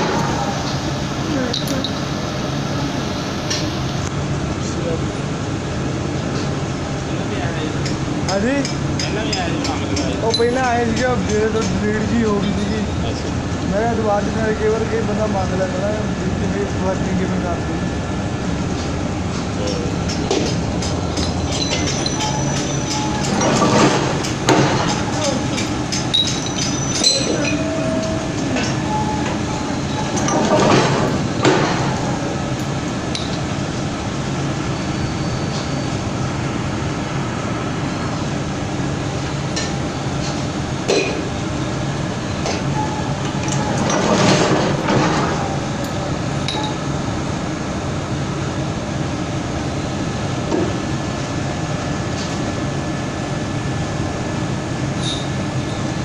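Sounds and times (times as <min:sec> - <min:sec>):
screw press machinery hum: 0:18.8 - 0:36.0
sharp metallic clinks: 0:21.2 - 0:23.4, 0:25.2 - 0:28.7, 0:55.0 - 0:55.9.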